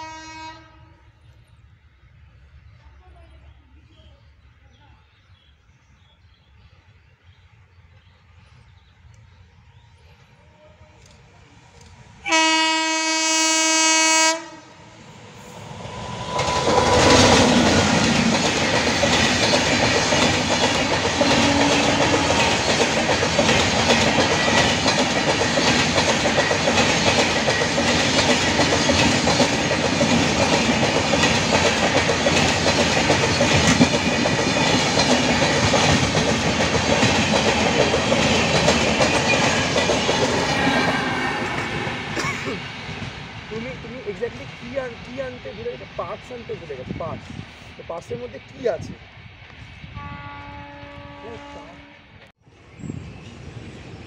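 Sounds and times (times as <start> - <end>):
train horn blast: 0.0 - 1.1, 12.2 - 14.9, 21.2 - 22.7, 49.9 - 52.3
train wheels on rails: 7.9 - 54.0.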